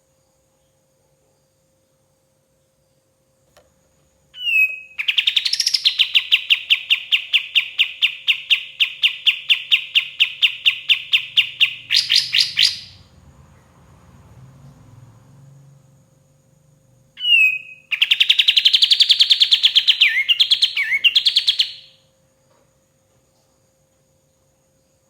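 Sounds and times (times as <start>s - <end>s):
bird song rapid sharp notes: 4.4s - 13.1s, 17.2s - 22.0s.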